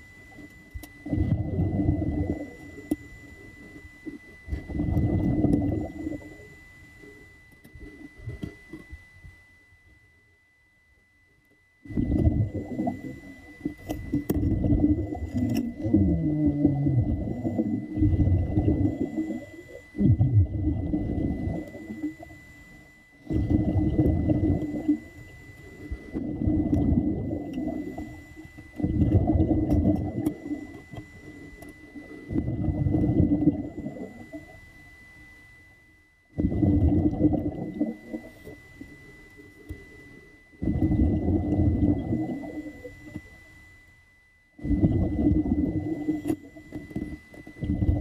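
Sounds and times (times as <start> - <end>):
muffled underwater gurgling: 0.0 - 9.4, 11.8 - 48.0
faint steady high tone: 0.0 - 48.0.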